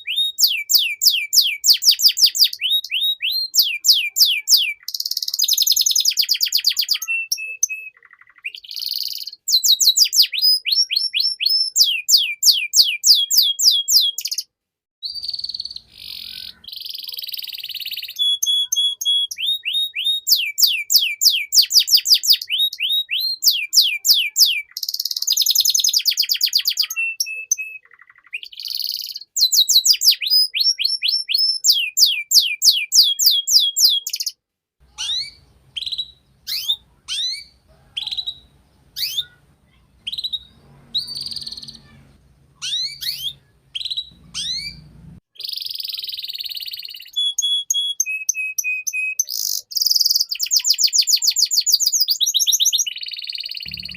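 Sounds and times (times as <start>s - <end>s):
canary singing trills: 0.0s - 53.9s
low hum: 44.2s - 45.2s, 53.7s - 53.9s.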